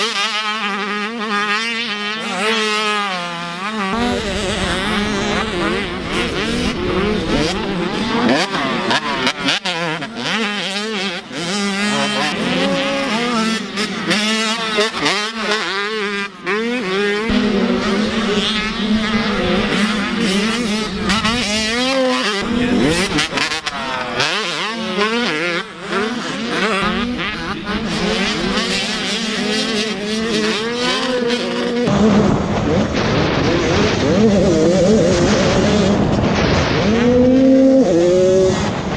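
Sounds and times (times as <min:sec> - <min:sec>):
motocross bikes revving: 0:00.0 - 0:38.9.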